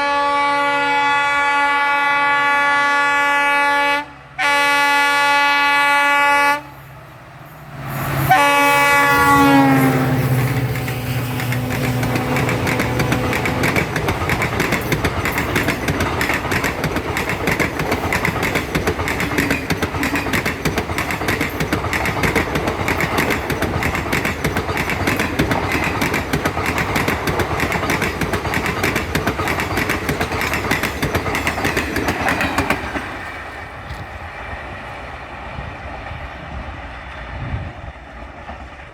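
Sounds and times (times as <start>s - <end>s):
diesel locomotive horn: 0.0s - 6.9s, 7.8s - 14.4s
train wheels clattering over rail joints: 9.8s - 34.9s.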